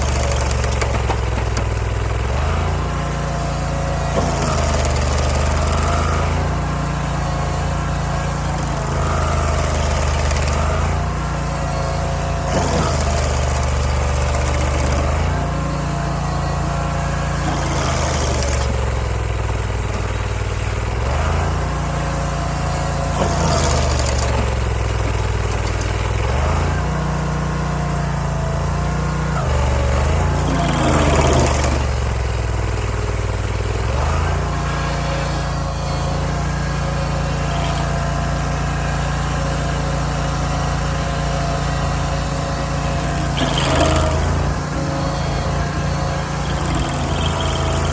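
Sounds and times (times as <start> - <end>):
stump grinder engine running: 0.0 - 47.9
grinding noise: 29.4 - 32.3, 40.9 - 47.9.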